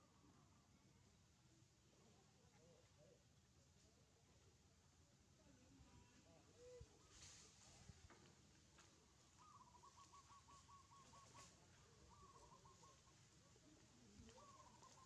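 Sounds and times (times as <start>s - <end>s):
bird calling faintly: 8.9s - 15.0s.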